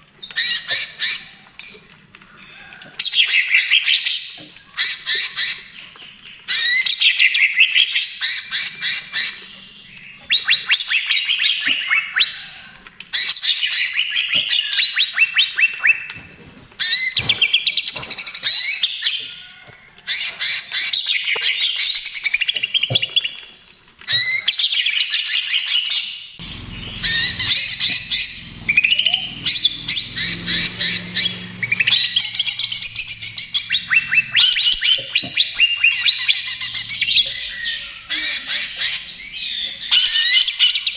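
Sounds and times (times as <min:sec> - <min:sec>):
bird singing rapid high notes: 0:26.4 - 0:39.4.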